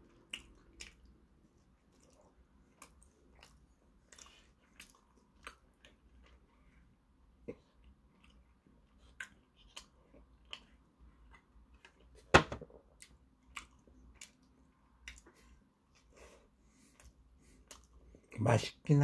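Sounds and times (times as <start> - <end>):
close-mouthed chewing: 0.0 - 12.2, 12.8 - 18.4
bottle set down on table: 12.3 - 12.7.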